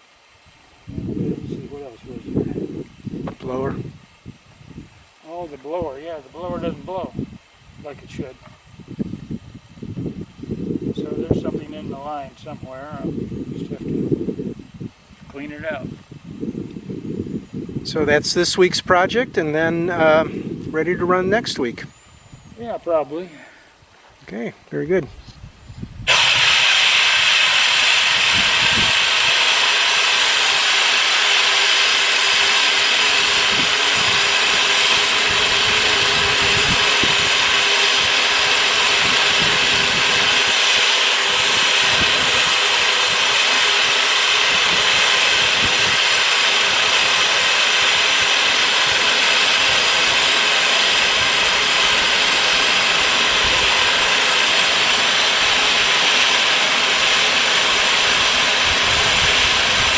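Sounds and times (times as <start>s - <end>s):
steam locomotive hissing: 25.1s - 59.9s.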